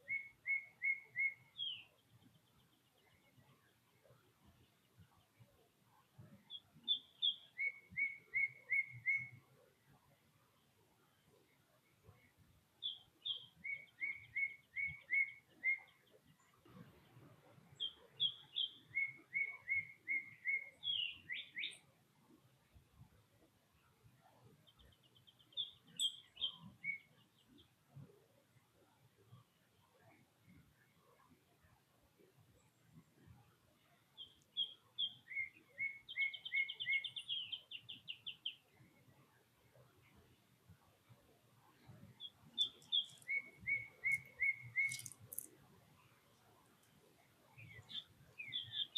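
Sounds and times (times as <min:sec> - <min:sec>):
songbird whistling: 0:00.0 - 0:01.9, 0:06.5 - 0:09.4, 0:12.8 - 0:16.0, 0:17.8 - 0:21.8, 0:25.6 - 0:27.1, 0:34.2 - 0:37.9, 0:42.2 - 0:45.4, 0:47.6 - 0:48.9.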